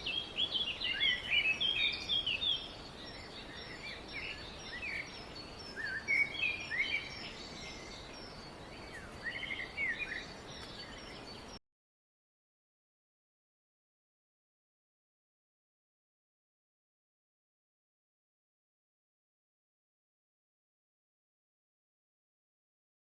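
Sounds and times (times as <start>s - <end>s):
small birds chirping: 0.0s - 11.6s
steady background hiss: 0.0s - 11.6s.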